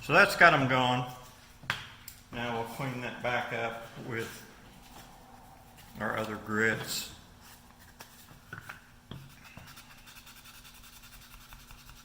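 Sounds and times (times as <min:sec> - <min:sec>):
sandpaper rubbing on wood: 0:09.3 - 0:12.0.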